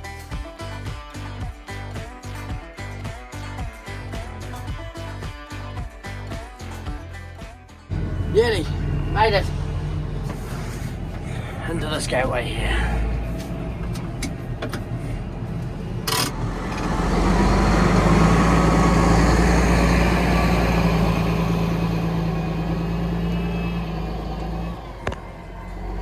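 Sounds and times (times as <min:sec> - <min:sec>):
tractor engine running: 0:07.9 - 0:26.0
clicks: 0:13.4 - 0:17.0.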